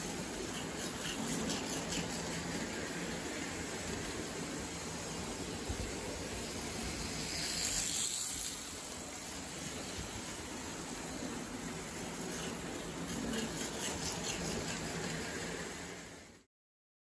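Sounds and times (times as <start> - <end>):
wheels clicking over rail joints: 0.0 - 10.5
toy train wheels and motor rumbling: 0.0 - 16.5.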